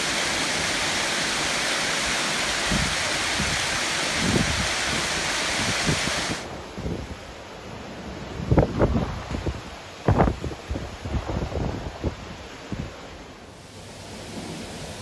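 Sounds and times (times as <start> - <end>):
heavy rain hissing: 0.0 - 6.5, 13.5 - 15.0
storm wind: 0.0 - 15.0
wind gusts thumping on microphone: 2.0 - 13.0.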